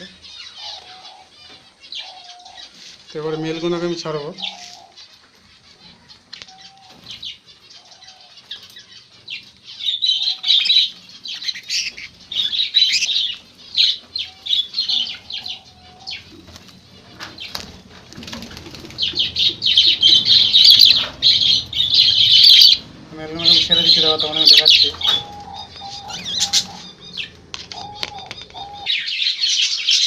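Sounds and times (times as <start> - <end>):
budgerigars chirping and chattering: 0.0 - 30.0
wings flapping: 10.8 - 22.9, 23.5 - 28.9.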